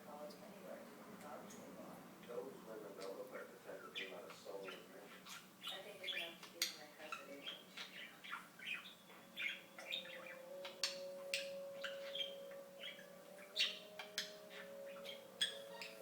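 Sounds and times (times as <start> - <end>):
budgerigar chattering: 3.4 - 16.0
faint steady tone: 8.8 - 16.0.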